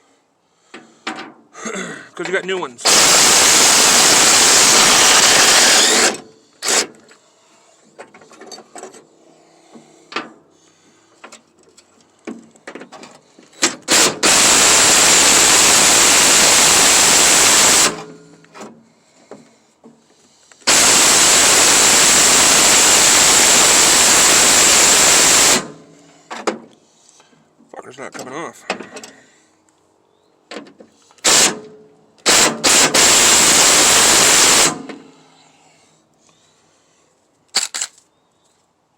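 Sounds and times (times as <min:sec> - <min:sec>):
power tool running: 0:02.8 - 0:07.0, 0:13.6 - 0:18.2, 0:20.6 - 0:25.9, 0:31.2 - 0:35.1.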